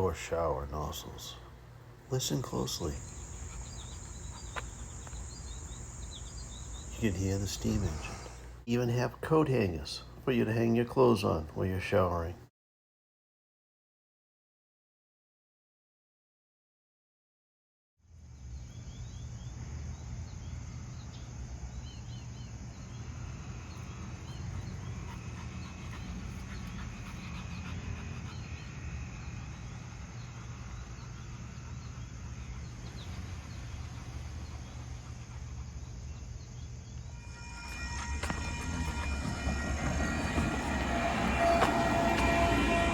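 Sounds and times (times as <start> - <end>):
small birds chirping: 0.0 - 8.8, 18.4 - 42.9.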